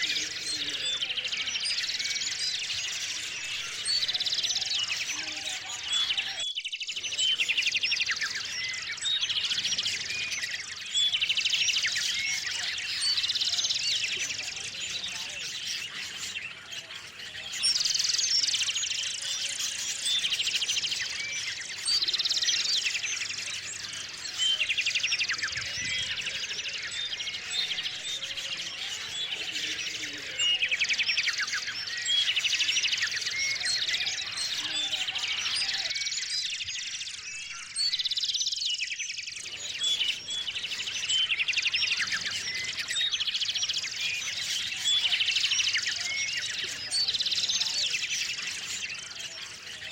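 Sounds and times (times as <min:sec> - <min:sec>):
songbirds chirping and singing: 0:00.0 - 0:49.9.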